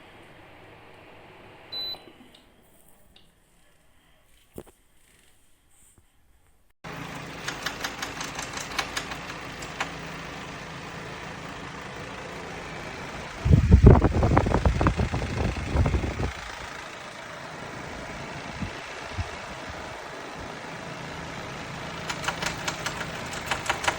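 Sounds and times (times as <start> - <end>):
steady mechanical hum: 0.0 - 3.6, 6.9 - 23.9
sharp clicks: 7.4 - 10.0, 22.1 - 23.9
low rumbling with rapid knocks: 13.4 - 16.7, 22.1 - 23.9.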